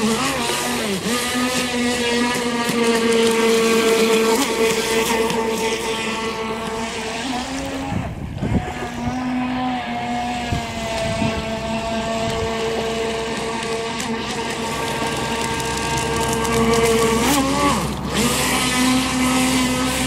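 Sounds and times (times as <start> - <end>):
electric motor whine: 0.0 - 20.0.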